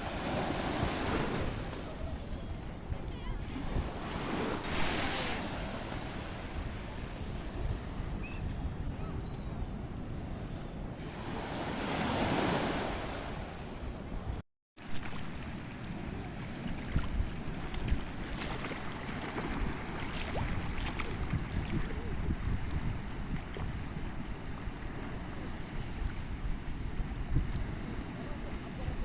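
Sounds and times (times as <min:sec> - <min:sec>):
sea waves washing in: 0:00.0 - 0:08.1, 0:10.8 - 0:14.0, 0:14.8 - 0:29.0
wind rumbling on microphone: 0:00.0 - 0:29.0.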